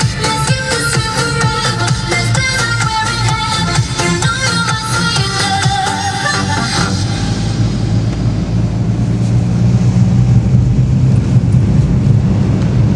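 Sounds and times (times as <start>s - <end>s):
road noise: 0.0s - 12.9s
vehicle rumble: 0.0s - 12.9s.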